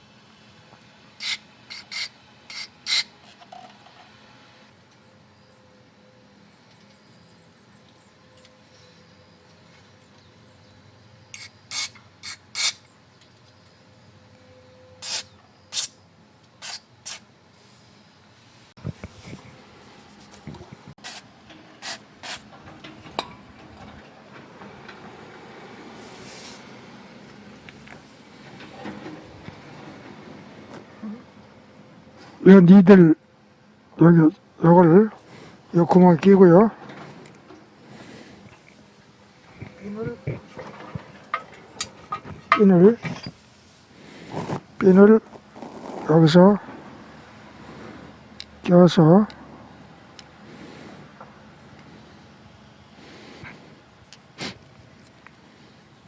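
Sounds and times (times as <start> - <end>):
short air hissing bursts: 1.2 - 3.1, 11.4 - 12.8, 15.0 - 16.0, 16.6 - 17.9, 21.0 - 22.4.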